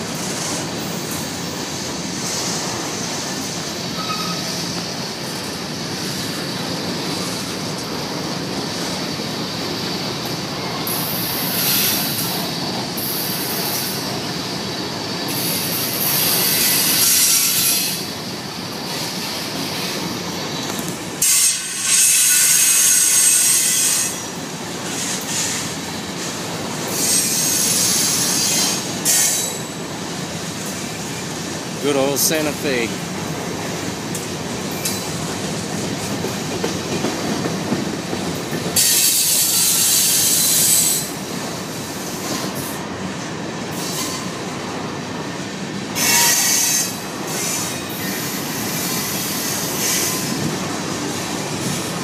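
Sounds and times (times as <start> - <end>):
wheels clattering on rail: 0.0 - 32.3, 32.9 - 52.0
freight trains rumbling past: 0.0 - 52.0
high-pitched wheel squeal: 4.0 - 4.5.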